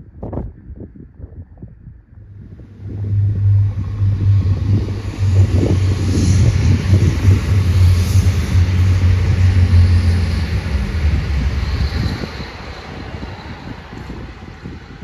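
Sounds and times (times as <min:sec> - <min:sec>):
train engine low hum: 0:01.9 - 0:15.0
train running along track: 0:02.2 - 0:15.0.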